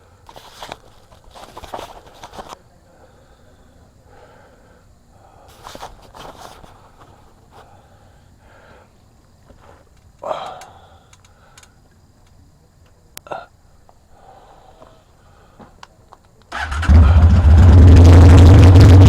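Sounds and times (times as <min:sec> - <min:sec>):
motorcycle engine starting and idling: 0:16.5 - 0:19.0.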